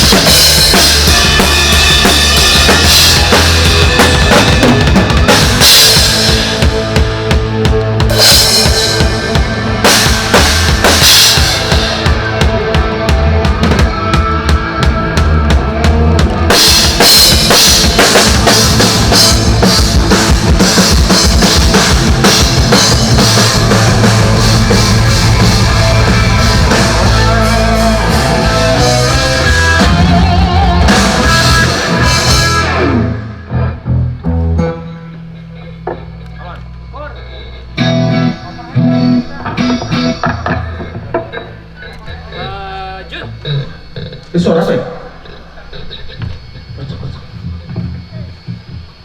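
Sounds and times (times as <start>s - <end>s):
drum kit beat: 0.0s - 33.1s, 37.7s - 43.4s
rock band playing live: 0.0s - 36.5s, 37.6s - 42.3s.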